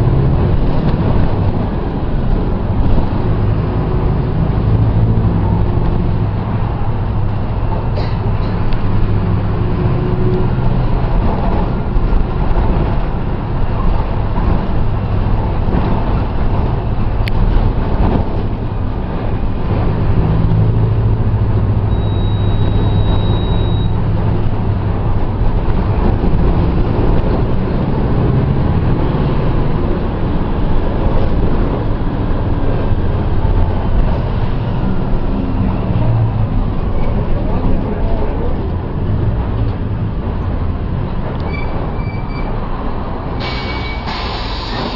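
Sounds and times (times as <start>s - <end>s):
bus diesel engine running: 0.0s - 44.9s
high-pitched beep: 21.9s - 24.0s.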